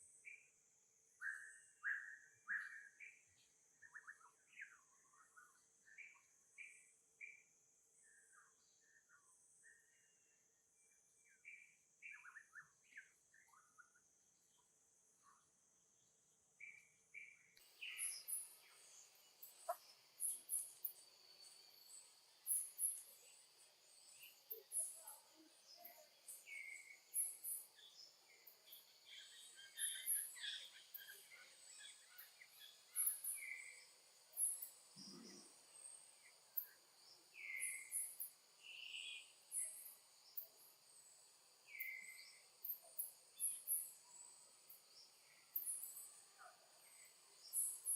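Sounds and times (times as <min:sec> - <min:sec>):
insect hiss: 0:17.2 - 0:47.9.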